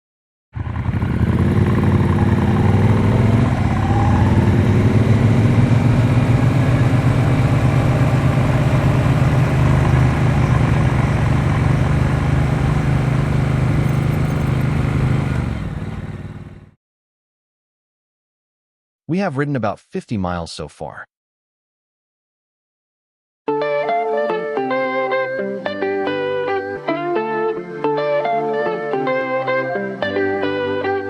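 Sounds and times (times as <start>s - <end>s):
motorcycle engine pulling away: 0.6s - 16.8s.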